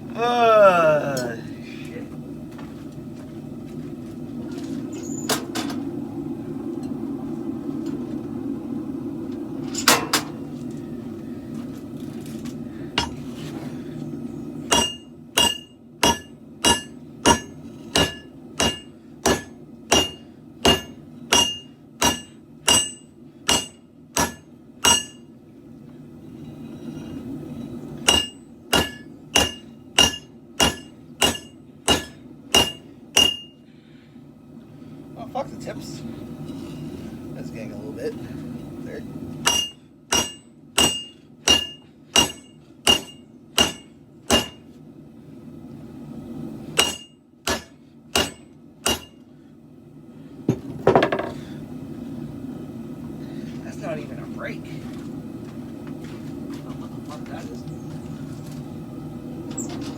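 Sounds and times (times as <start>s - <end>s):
low rumble: 1.4s - 12.8s
hammer striking steel on anvil: 13.0s - 13.2s, 14.7s - 25.3s, 28.0s - 33.6s, 39.4s - 44.7s, 46.8s - 49.2s.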